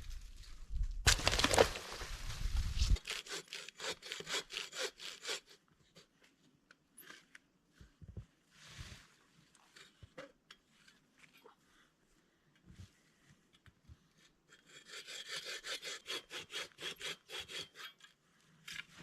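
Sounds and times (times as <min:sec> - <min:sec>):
hand saw cutting wood: 0:02.9 - 0:05.6, 0:14.6 - 0:18.1.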